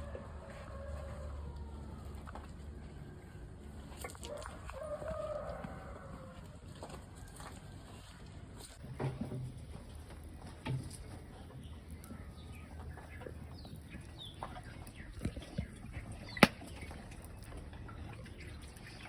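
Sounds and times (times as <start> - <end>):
birds chirping faintly: 10.8 - 19.0.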